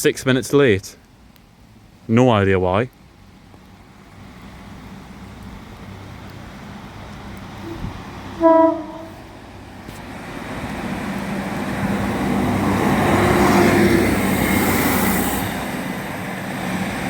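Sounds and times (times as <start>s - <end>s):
train engine and wheel noise: 0.0s - 17.0s
train horn blast: 7.6s - 9.4s.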